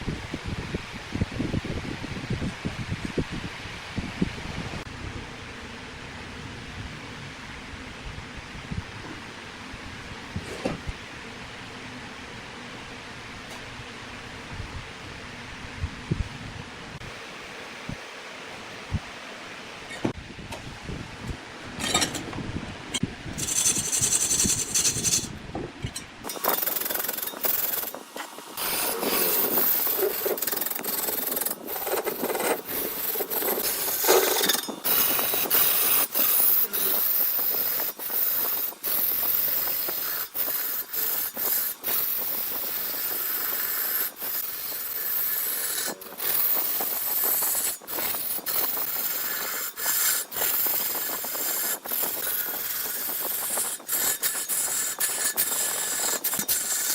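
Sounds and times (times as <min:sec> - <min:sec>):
lathe tool scraping wood: 0:23.4 - 0:56.9.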